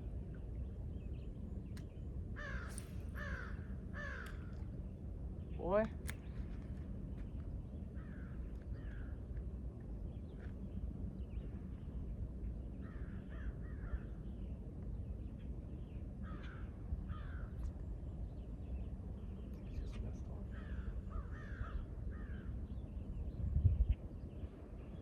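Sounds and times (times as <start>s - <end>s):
low background rumble: 0.0s - 25.0s
bird harsh raspy calls: 2.4s - 4.6s, 20.5s - 22.6s.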